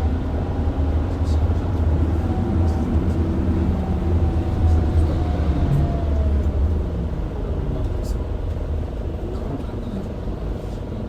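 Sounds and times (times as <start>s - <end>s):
bus diesel engine rumble: 0.0s - 11.0s.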